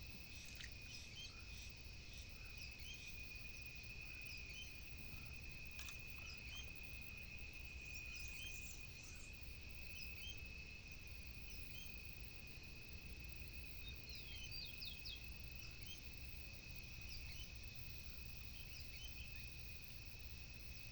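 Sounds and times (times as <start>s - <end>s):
high-pitched insect drone: 0.0s - 20.9s
small click: 5.8s - 6.6s.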